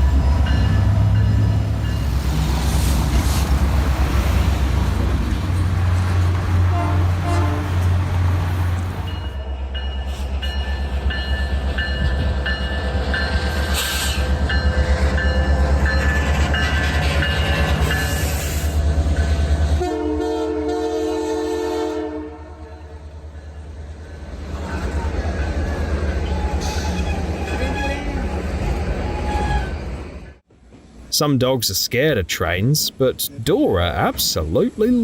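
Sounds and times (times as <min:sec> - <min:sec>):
train rumbling past: 0:00.0 - 0:35.0
train horn chord: 0:06.7 - 0:08.0, 0:19.8 - 0:22.8.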